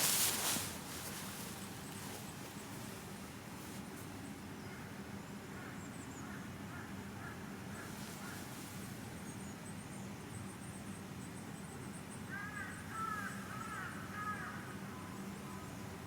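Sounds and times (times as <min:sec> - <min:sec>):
crows cawing: 0:12.3 - 0:14.7.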